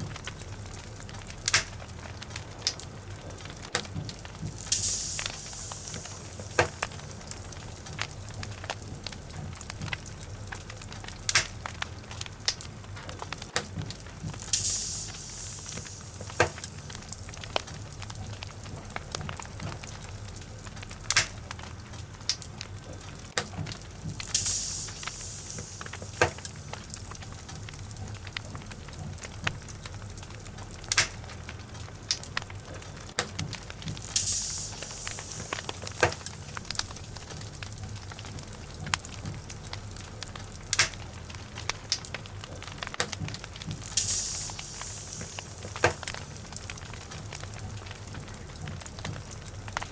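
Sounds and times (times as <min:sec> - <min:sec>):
logs crackling in fireplace: 0:00.0 - 0:49.9
low rumble of flames: 0:00.0 - 0:49.9
sharp fire pops: 0:00.0 - 0:49.9
short hissing bursts: 0:04.5 - 0:08.5, 0:14.4 - 0:17.9, 0:24.1 - 0:27.9, 0:34.0 - 0:38.5, 0:43.8 - 0:46.7.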